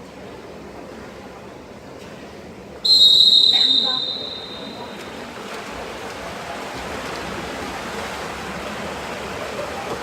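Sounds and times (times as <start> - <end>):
water splashing in pool: 3.3 - 10.0.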